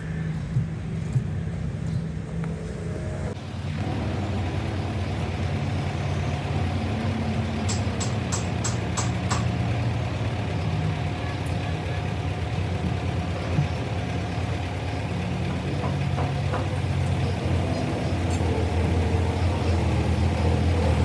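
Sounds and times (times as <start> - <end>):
diesel engine idling: 3.3 - 21.0.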